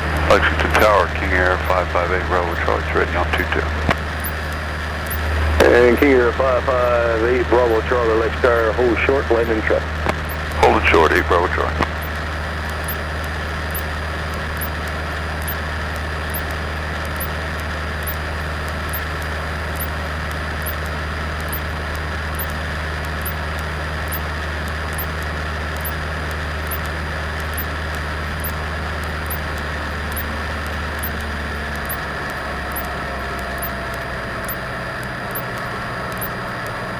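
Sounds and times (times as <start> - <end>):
small plane engine droning: 0.0 - 36.9
faint high ticks: 11.8 - 36.8.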